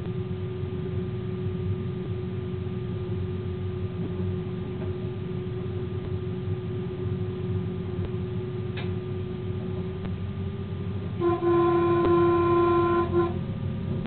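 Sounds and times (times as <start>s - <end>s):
constant hum: 0.0s - 14.0s
train cab low rumble: 0.0s - 14.0s
locomotive horn blast: 11.0s - 13.6s.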